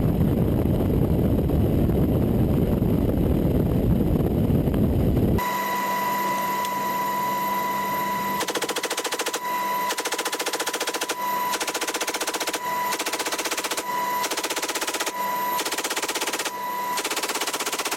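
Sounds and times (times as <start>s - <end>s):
wind noise: 0.0s - 5.4s
mechanical hum with high whine: 0.0s - 10.1s
helicopter rotor rumble: 0.0s - 17.9s
machine gun burst: 8.3s - 17.9s.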